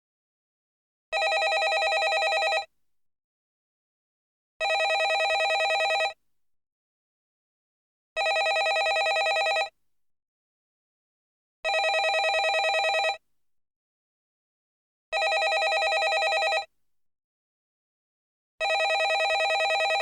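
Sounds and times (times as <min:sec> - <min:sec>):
landline telephone ringing: 0:01.2 - 0:02.7, 0:04.6 - 0:06.2, 0:08.2 - 0:09.7, 0:11.7 - 0:13.2, 0:15.2 - 0:16.7, 0:18.6 - 0:20.0.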